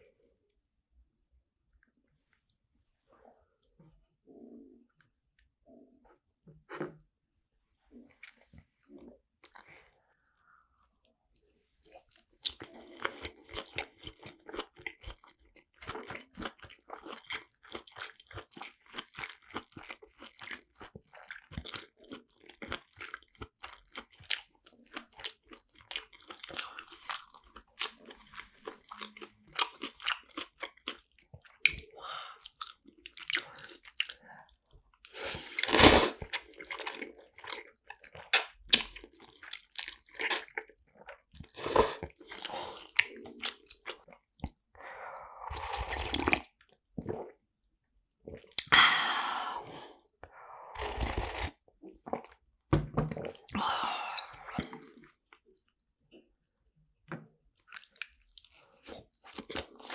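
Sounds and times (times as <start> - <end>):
person chewing food: 11.8 - 44.6, 57.6 - 59.9.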